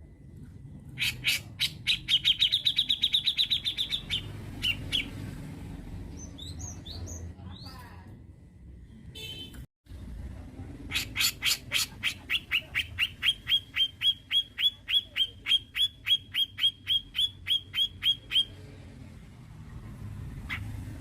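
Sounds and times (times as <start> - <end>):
bird calling sharp notes: 10.9 - 18.6.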